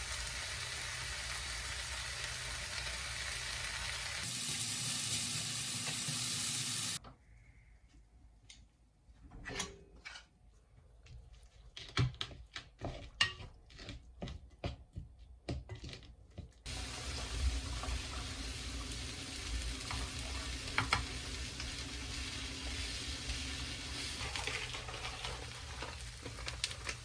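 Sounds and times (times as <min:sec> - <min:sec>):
food sizzling in a pan: 0:00.0 - 0:07.0, 0:16.7 - 0:27.0.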